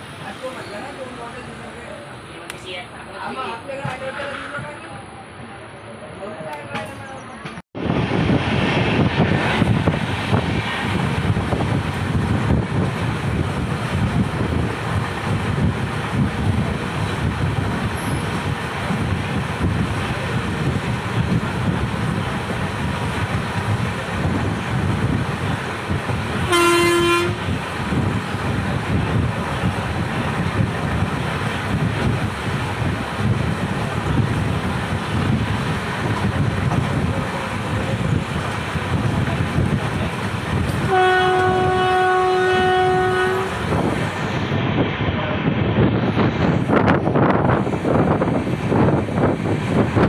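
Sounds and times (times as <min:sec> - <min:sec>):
train track noise: 0:00.0 - 0:50.0
wind: 0:00.0 - 0:50.0
locomotive horn blast: 0:26.4 - 0:27.6, 0:40.8 - 0:43.9.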